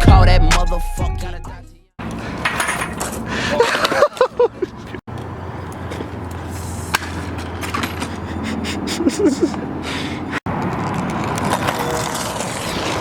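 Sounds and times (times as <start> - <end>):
scooter wheels rumbling on pavement: 2.0 - 13.0.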